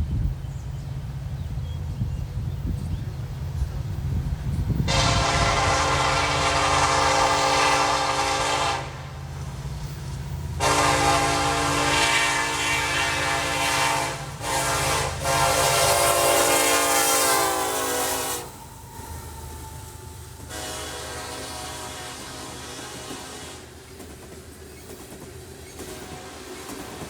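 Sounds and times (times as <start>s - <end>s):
passing train rumble: 0.0s - 27.0s
locomotive air horn blasts: 4.9s - 9.1s, 10.6s - 23.8s, 25.9s - 27.0s.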